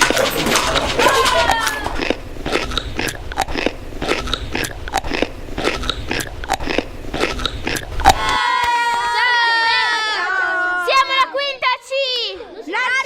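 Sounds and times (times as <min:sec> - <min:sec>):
crunchy food being chewed: 0:00.2 - 0:08.3.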